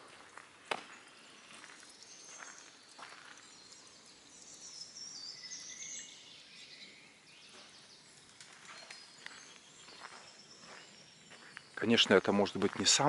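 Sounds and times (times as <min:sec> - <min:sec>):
footsteps on sandy ground: 0:00.0 - 0:04.1, 0:07.4 - 0:13.0
faint outdoor background noise: 0:00.0 - 0:13.0.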